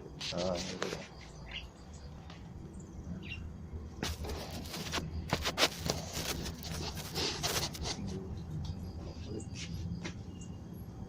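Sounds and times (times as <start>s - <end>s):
steady low hum: 0.0s - 11.0s
faint chirp: 1.0s - 3.6s, 8.2s - 11.0s.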